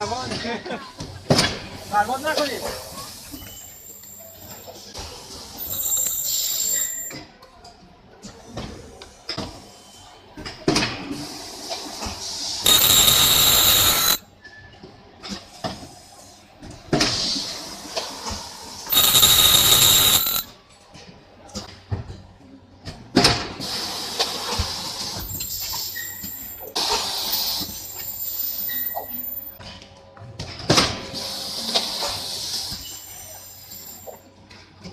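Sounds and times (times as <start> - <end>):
machine hissing bursts: 12.6 - 14.2, 18.9 - 20.5.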